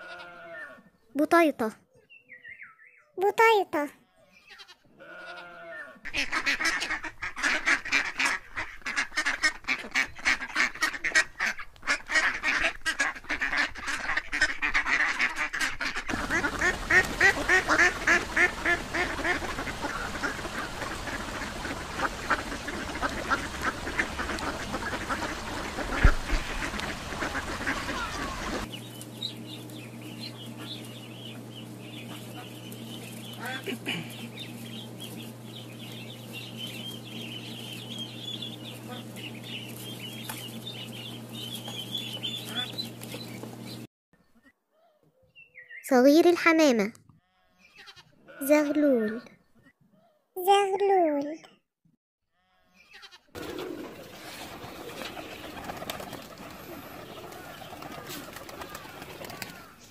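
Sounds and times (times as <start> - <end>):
ducks quacking: 4.5 - 28.7, 29.3 - 43.8, 52.9 - 59.9
ducklings peeping: 5.4 - 44.5, 52.8 - 59.9
steady low hum: 12.5 - 43.9.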